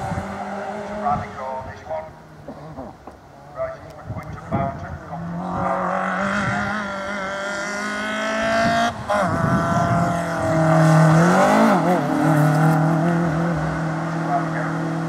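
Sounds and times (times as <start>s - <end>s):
rally car engine at high revs: 0.0s - 1.4s, 5.0s - 15.0s.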